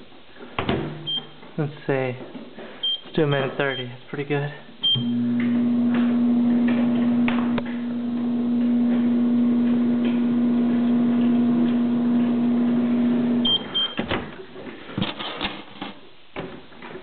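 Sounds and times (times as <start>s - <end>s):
microwave short beeps: 4.8s - 5.3s, 13.4s - 14.0s
microwave oven humming: 5.0s - 13.8s.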